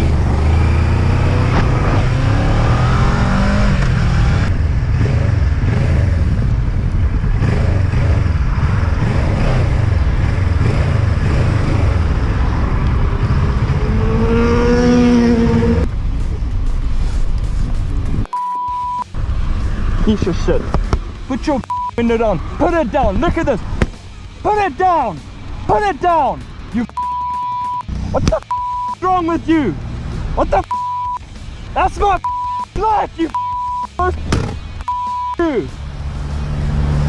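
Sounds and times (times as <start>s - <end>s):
motorcycle engine running hard: 0.0s - 18.3s
rushing wind noise: 0.0s - 18.3s
short steady beep: 18.3s - 19.2s, 21.6s - 22.1s, 26.9s - 29.1s, 30.6s - 31.2s, 32.2s - 34.2s, 34.8s - 35.5s.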